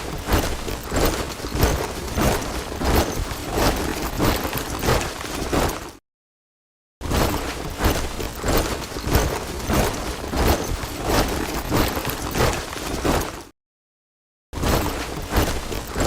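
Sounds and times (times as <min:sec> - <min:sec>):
soldiers marching in step: 0:00.0 - 0:06.0, 0:07.3 - 0:13.5.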